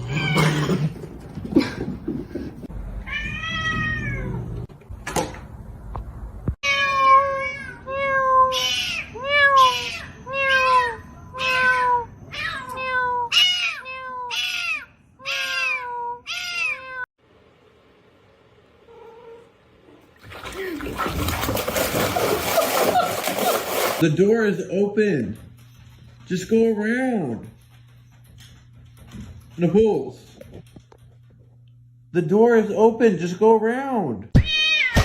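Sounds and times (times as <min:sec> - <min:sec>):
cat meowing: 0:03.1 - 0:04.4, 0:06.6 - 0:17.0.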